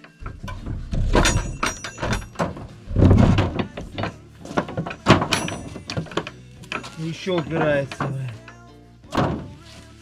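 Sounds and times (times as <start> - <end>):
door knocking and scraping in frame: 0.2 - 6.2
heavy door thud: 0.2 - 6.3, 9.1 - 9.5.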